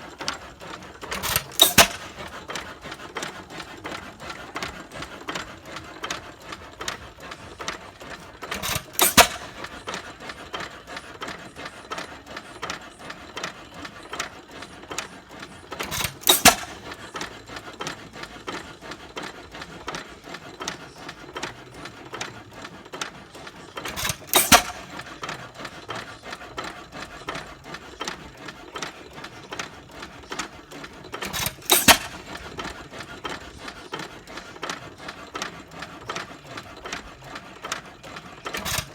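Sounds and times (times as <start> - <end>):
hit-and-miss engine firing: 23.9 - 25.0.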